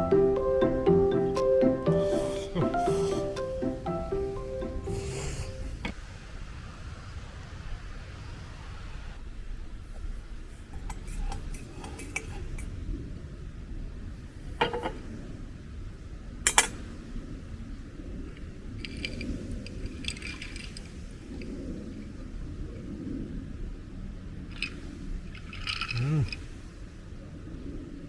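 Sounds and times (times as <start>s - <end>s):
tableware clinking: 14.6s - 15.0s, 16.5s - 16.8s.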